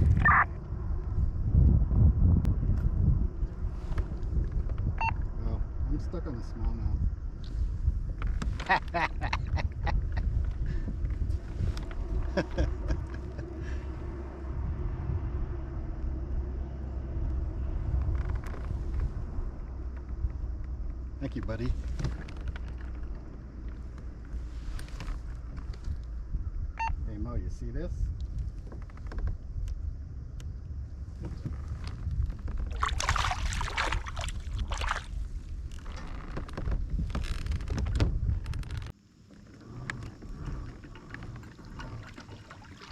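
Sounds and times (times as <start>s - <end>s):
wind rumbling on microphone: 0.0s - 42.9s
water splashing beside kayak: 31.2s - 36.1s, 40.1s - 42.9s.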